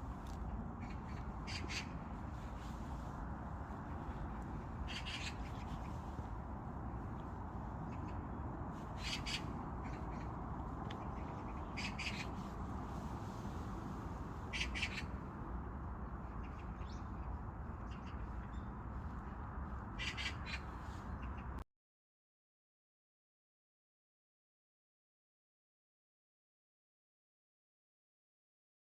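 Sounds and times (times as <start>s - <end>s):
low park ambience rumble: 0.0s - 21.6s
birds making harsh calls: 0.8s - 1.9s, 4.9s - 5.7s, 9.0s - 10.3s, 11.0s - 12.3s, 14.5s - 15.1s, 20.0s - 21.5s.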